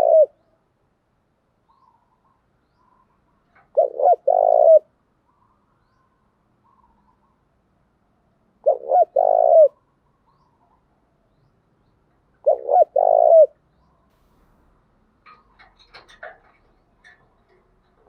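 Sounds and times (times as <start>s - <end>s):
dove cooing: 0.0s - 0.4s, 3.6s - 4.9s, 8.6s - 9.8s, 12.4s - 13.6s.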